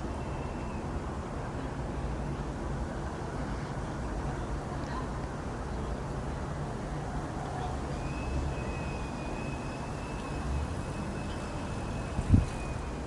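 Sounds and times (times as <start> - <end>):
distant jet aircraft rumble: 0.0 - 13.0
faint high whine: 7.8 - 13.0.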